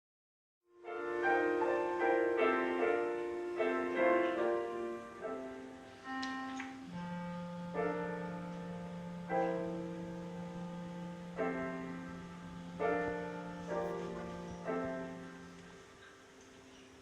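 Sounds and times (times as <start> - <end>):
piano chords: 0.7 - 17.0
held low piano bass note: 6.1 - 15.6.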